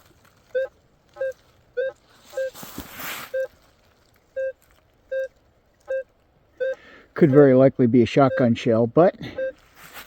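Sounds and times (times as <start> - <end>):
rustle: 0.0 - 8.1, 9.5 - 10.0
metal detector beeps: 0.5 - 2.6, 3.3 - 3.6, 4.3 - 7.4, 8.2 - 9.6.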